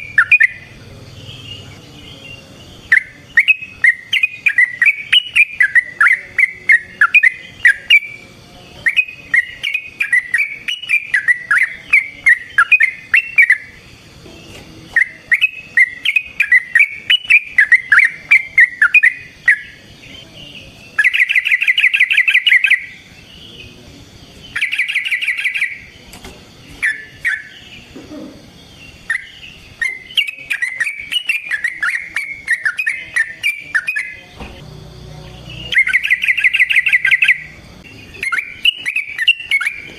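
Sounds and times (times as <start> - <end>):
bird singing bubbly chattering: 0.0 - 14.0, 14.8 - 26.0, 26.6 - 28.0, 28.6 - 34.6, 35.3 - 39.9
bird rattling trills: 35.7 - 37.5.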